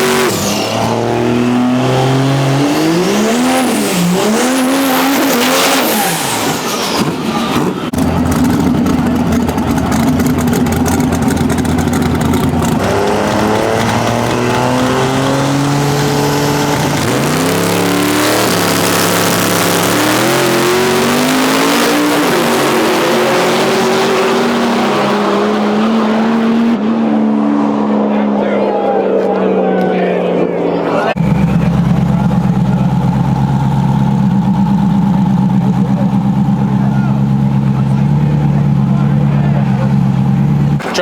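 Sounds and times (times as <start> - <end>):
drag racing engine at full throttle: 0.0 - 41.0
tire noise: 0.0 - 41.0.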